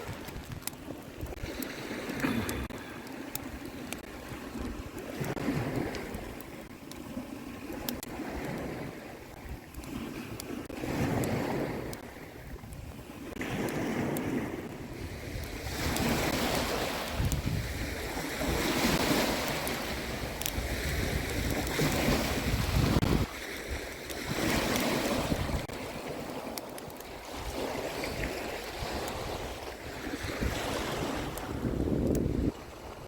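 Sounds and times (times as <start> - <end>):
sea waves washing on beach: 0.0 - 33.0
wind buffeting microphone: 8.0 - 26.3, 27.2 - 33.0
faint sharp clicks: 20.4 - 20.6, 31.3 - 32.3.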